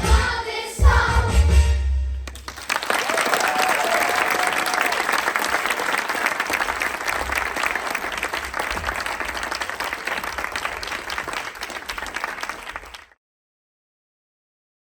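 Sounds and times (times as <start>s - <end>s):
audience applauding: 2.2s - 13.2s.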